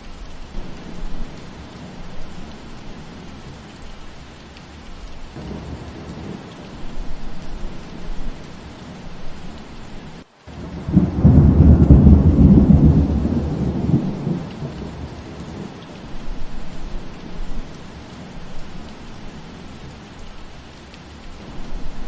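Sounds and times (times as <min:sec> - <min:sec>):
steady rain hiss: 0:00.0 - 0:22.0
low rumble of thunder: 0:00.5 - 0:03.7, 0:05.3 - 0:19.9.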